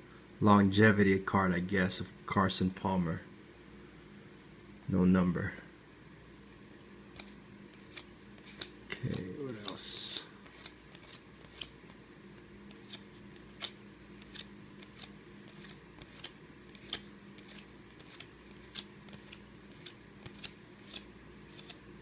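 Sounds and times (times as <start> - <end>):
faint steady hum: 0.0 - 22.0
trading cards clicking: 7.1 - 21.8.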